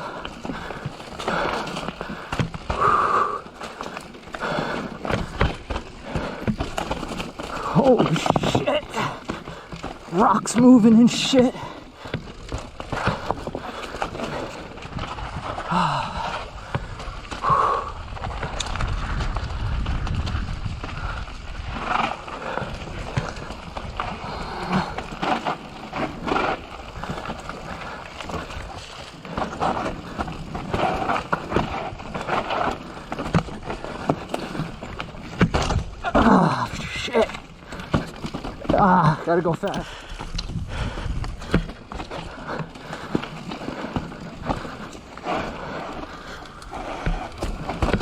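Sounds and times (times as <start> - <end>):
bike rattling: 0.0 - 48.0
tyres crunching over rocks: 0.0 - 48.0.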